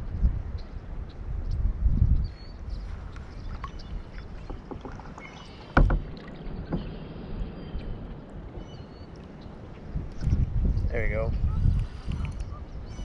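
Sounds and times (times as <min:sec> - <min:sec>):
paddle dipping and splashing: 0:02.8 - 0:10.5
light clicks and knocks: 0:04.4 - 0:07.0.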